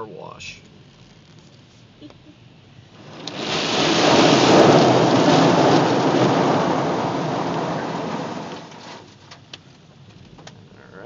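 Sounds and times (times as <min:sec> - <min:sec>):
rainwater drumming on a car: 0:02.9 - 0:10.5.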